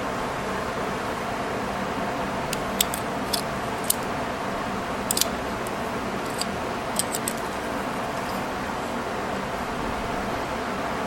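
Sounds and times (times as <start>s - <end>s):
steady background hum: 0.0s - 11.0s
staple remover clicking: 2.5s - 4.1s, 5.1s - 8.5s.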